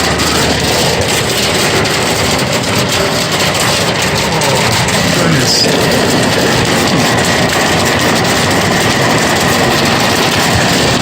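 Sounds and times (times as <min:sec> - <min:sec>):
hail on car roof: 0:00.0 - 0:11.0.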